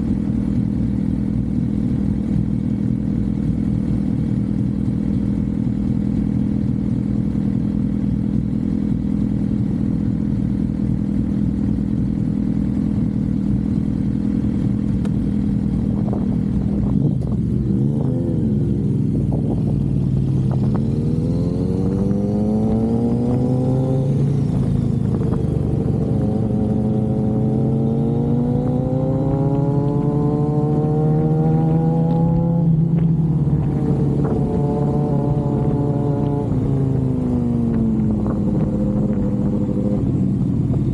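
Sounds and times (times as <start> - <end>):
motorcycle engine cruising: 0.0 - 40.9
wind noise: 15.5 - 40.9.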